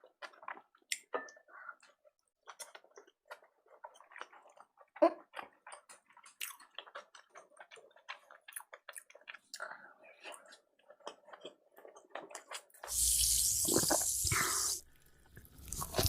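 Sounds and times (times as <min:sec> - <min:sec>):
wet chewing sounds: 0:00.0 - 0:13.0, 0:13.6 - 0:16.0.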